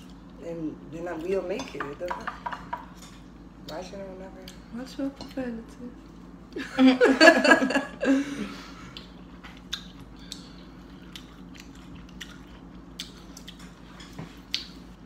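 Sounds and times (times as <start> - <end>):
person laughing: 6.6 - 8.7
lip smacks: 8.9 - 10.5, 14.5 - 14.9
wet mouth clicks while chewing: 8.9 - 13.7, 14.5 - 15.0.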